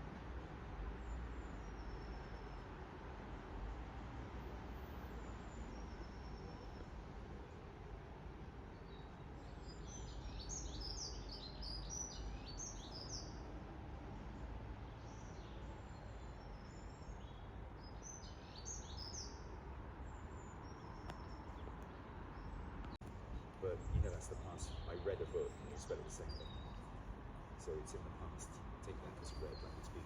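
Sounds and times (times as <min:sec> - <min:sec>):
small birds chirping: 0:05.1 - 0:07.6, 0:08.6 - 0:13.5, 0:14.4 - 0:30.0.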